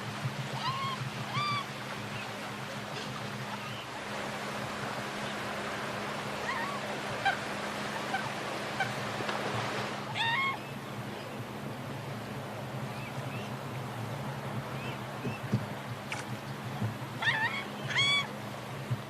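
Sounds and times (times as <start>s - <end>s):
swan calls: 0.5s - 2.3s, 6.3s - 9.1s, 10.0s - 11.3s, 17.2s - 18.4s.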